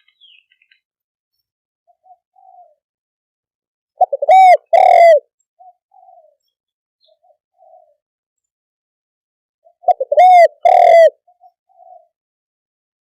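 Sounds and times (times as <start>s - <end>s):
dove cooing: 1.9s - 2.8s, 4.0s - 8.0s, 9.6s - 12.2s.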